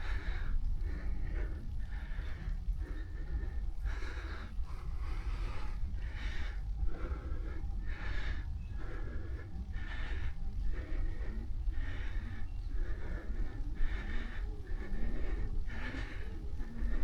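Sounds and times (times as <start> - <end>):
cyclist breathing hard: 0.0 - 17.0.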